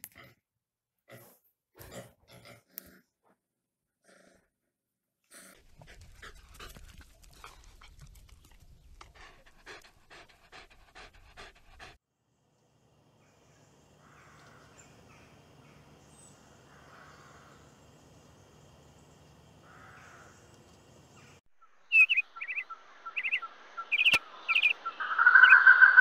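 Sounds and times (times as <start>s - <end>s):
dog panting: 5.4s - 12.0s.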